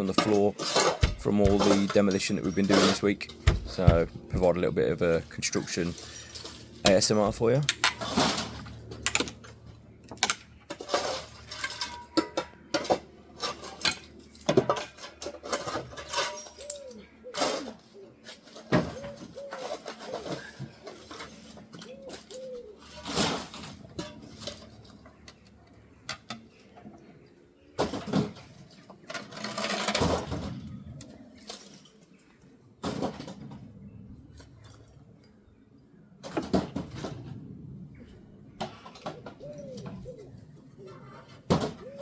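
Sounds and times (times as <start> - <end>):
clinks of debris: 10.7 - 16.8.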